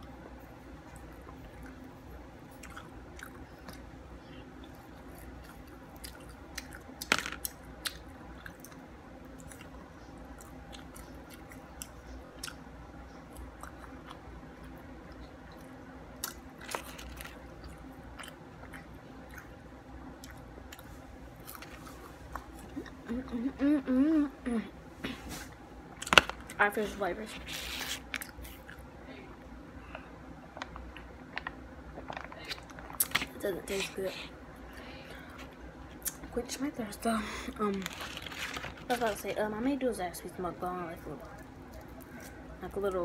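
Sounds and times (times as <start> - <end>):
faint steady hum: 0.0 - 43.0
chewing chicken nuggets: 2.5 - 19.6.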